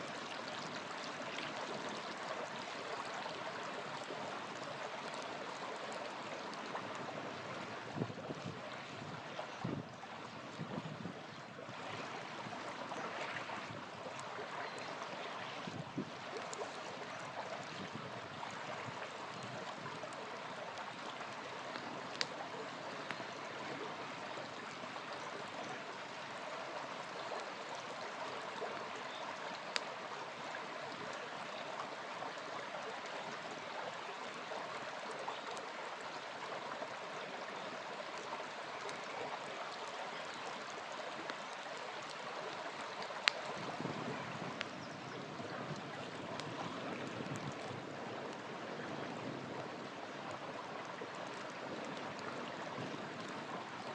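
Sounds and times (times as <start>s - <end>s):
river flowing: 0.0s - 53.9s
campfire popping and crackling: 14.1s - 24.4s, 29.4s - 30.0s, 40.6s - 44.8s, 45.4s - 53.9s.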